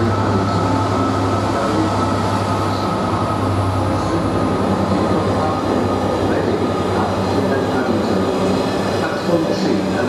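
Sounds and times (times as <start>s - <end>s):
diesel locomotive engine hum: 0.0s - 10.0s
rumble of train wheels on rail: 0.0s - 10.0s.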